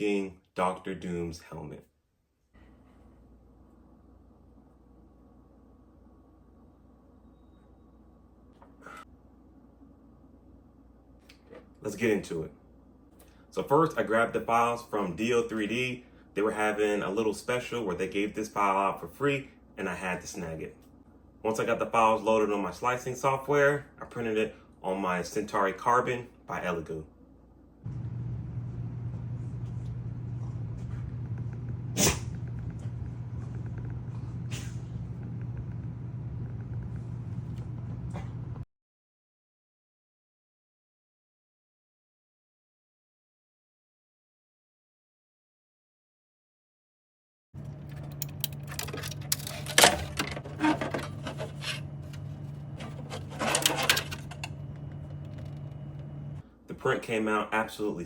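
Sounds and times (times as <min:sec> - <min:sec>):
low fan hum: 0:27.8 - 0:38.6, 0:47.6 - 0:56.5
printer motor movement: 0:47.6 - 0:56.4.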